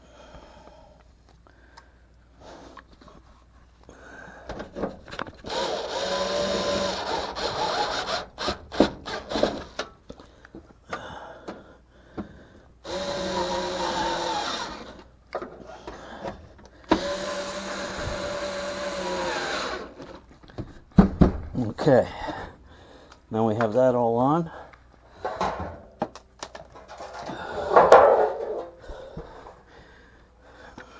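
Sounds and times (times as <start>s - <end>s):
power drill driving screws: 5.4s - 9.8s, 12.8s - 15.1s, 16.9s - 20.2s.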